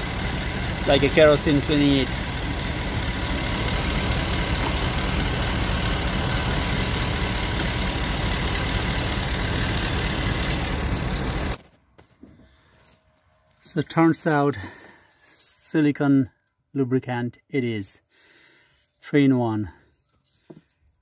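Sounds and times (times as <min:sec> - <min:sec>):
car engine idling: 0:00.0 - 0:11.6.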